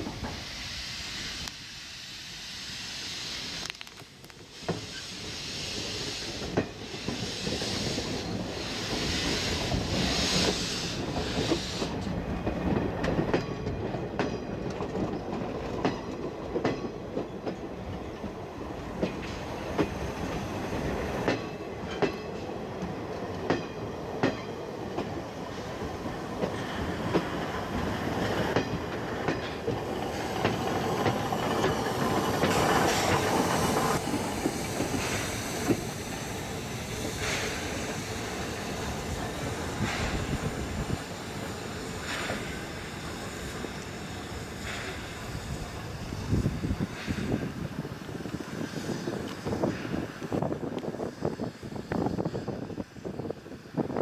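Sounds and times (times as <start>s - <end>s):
pulsing steam hiss: 0.0s - 14.6s, 17.6s - 54.0s
train wheels clicking over rail joints: 3.4s - 54.0s.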